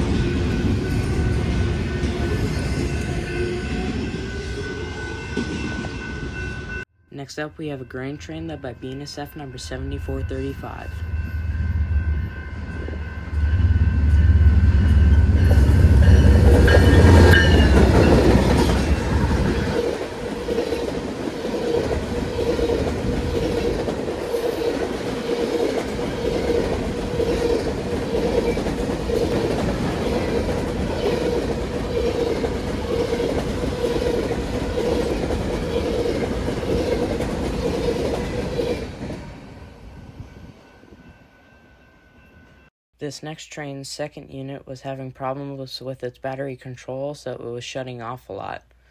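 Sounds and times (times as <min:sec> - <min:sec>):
diesel locomotive engine rumble: 0:00.0 - 0:06.8, 0:08.3 - 0:42.6
train wheels clattering: 0:12.1 - 0:40.2.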